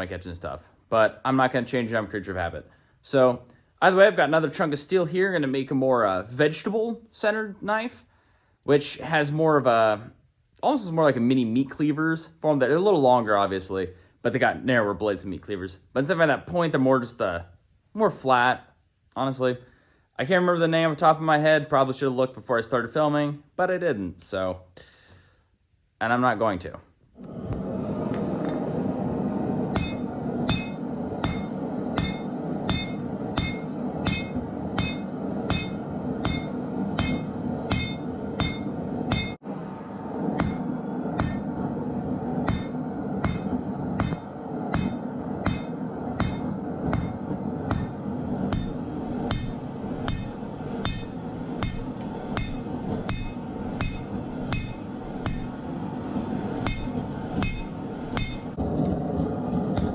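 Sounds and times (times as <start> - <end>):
steady background noise: 27.1 - 59.9
hammer striking anvil: 29.7 - 39.4, 40.4 - 41.6, 42.4 - 55.8, 56.6 - 58.6.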